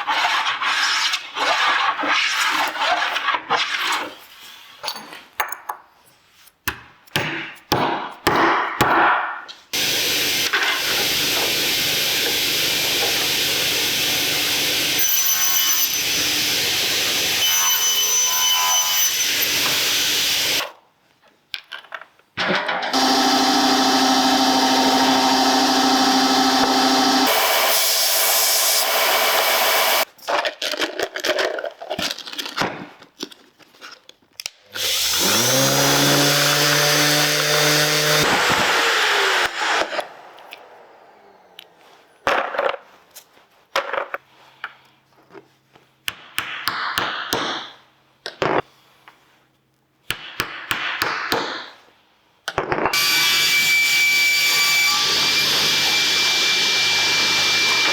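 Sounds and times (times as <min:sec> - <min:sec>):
woodworking machine running: 0:09.8 - 0:17.8, 0:18.9 - 0:20.6, 0:22.9 - 0:30.0, 0:34.8 - 0:42.0, 0:53.0 - 0:57.9
electric motor spinning: 0:23.0 - 0:30.0, 0:34.8 - 0:41.8, 0:54.9 - 0:57.9.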